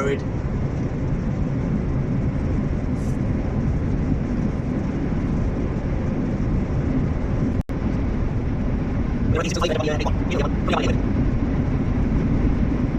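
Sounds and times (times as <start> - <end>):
vehicle engine and road noise: 0.0 - 12.9.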